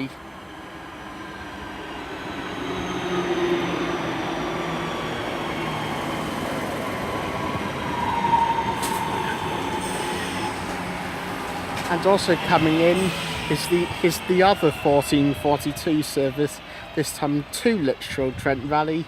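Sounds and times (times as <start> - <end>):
electric train braking whine: 0.0 - 16.8.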